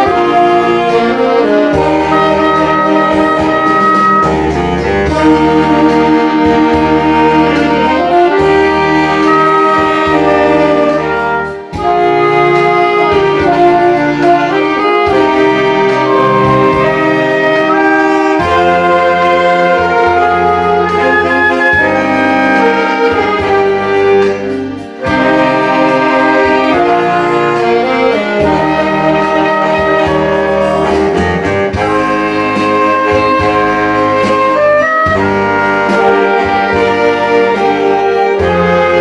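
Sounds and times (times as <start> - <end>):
saxophone ensemble playing: 0.0 - 39.0
electronic backing track: 0.2 - 39.0.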